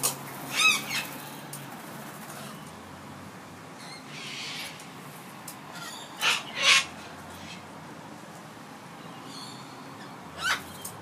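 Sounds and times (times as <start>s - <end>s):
bird harsh screeches: 0.5s - 1.3s, 5.7s - 7.6s, 10.4s - 10.8s.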